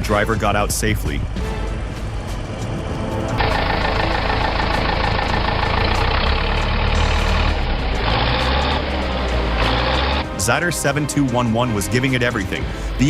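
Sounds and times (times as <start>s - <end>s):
heavy machine engine running: 1.8s - 10.3s.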